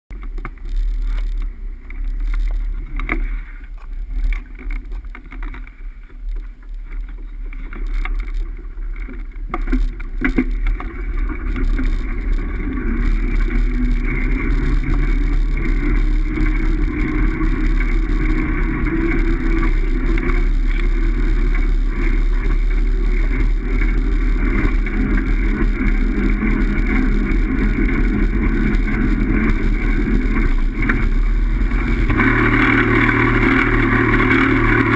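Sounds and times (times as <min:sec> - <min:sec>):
deep rumble: 0:00.1 - 0:34.9.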